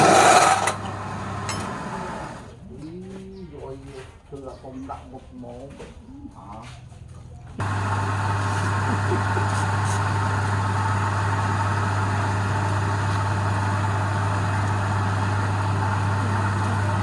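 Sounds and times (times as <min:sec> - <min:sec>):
wood lathe motor hum: 0:07.6 - 0:17.0.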